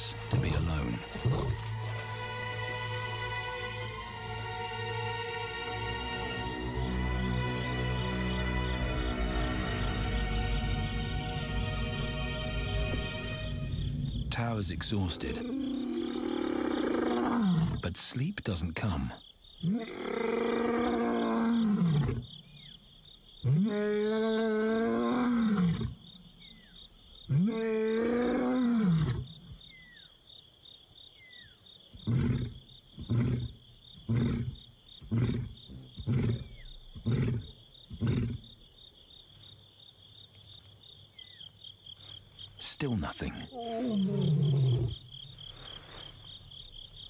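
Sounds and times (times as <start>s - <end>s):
lion grunting: 14.8s - 17.9s, 32.0s - 38.6s, 43.2s - 45.1s
lion roaring: 15.1s - 17.8s, 19.6s - 22.2s, 23.4s - 26.0s, 27.3s - 29.3s, 32.0s - 38.4s, 43.5s - 45.1s.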